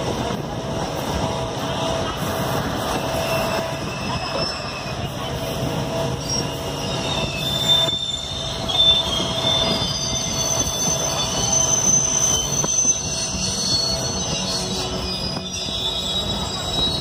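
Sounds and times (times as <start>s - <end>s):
train rail rumble: 0.0s - 17.0s
high-pitched wheel squeal: 2.8s - 17.0s.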